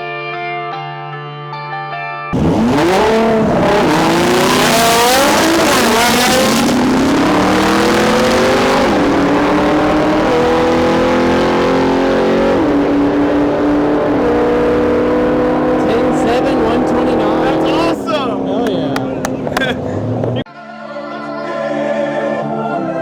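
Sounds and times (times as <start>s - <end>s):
race car engine at full throttle: 2.3s - 20.5s
gear changes: 2.4s - 20.4s.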